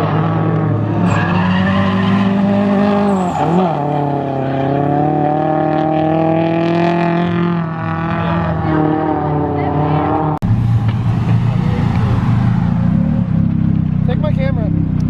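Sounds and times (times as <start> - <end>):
car engine at high revs: 0.0 - 15.0
tyres screeching: 0.9 - 5.0.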